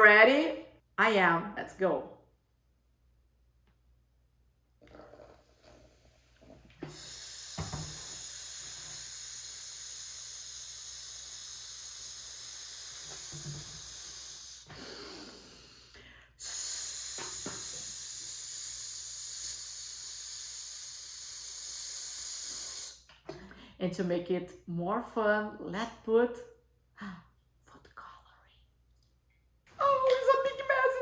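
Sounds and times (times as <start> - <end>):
person making shhh sound: 6.8 - 23.1.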